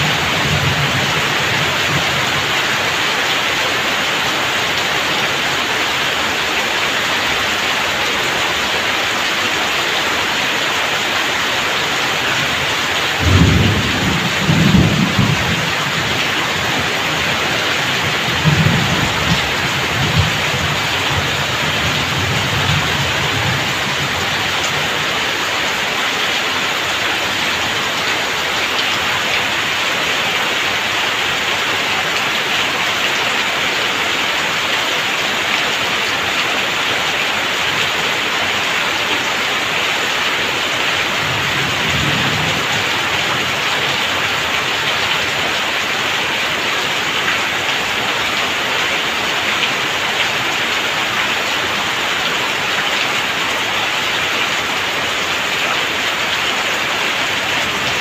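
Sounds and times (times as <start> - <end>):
heavy rain splashing on ground: 0.0 - 58.0
thunder rumbling: 13.2 - 25.1.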